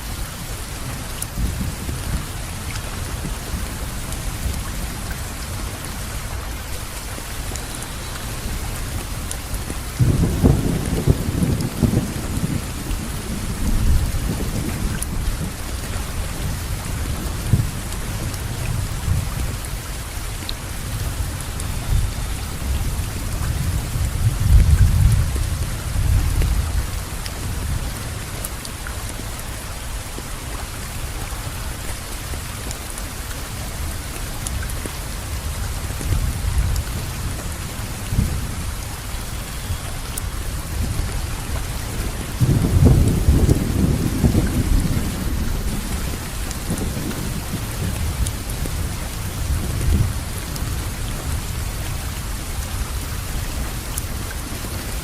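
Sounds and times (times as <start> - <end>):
steady rainfall: 0.0 - 55.0
thunder rumbling: 9.8 - 19.5, 40.4 - 51.5.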